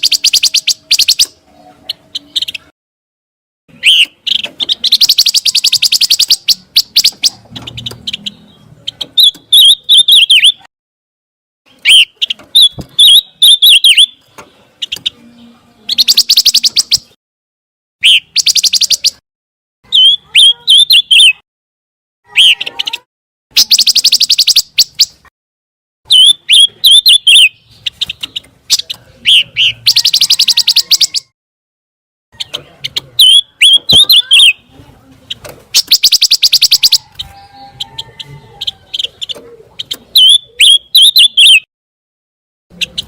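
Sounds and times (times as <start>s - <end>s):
songbird trills and twittering: 0.0s - 2.7s, 3.7s - 10.7s, 11.7s - 17.2s, 18.0s - 19.2s, 22.3s - 25.2s, 26.1s - 31.3s, 32.4s - 41.7s.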